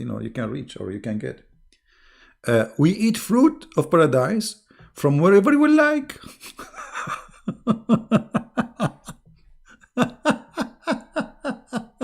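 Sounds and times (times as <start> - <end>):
man laughing: 6.2 - 12.0.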